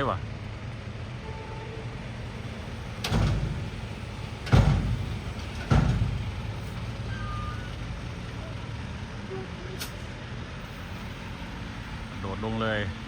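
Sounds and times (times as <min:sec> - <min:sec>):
truck engine humming: 0:00.0 - 0:13.0
heavy ringing thuds: 0:03.0 - 0:06.6.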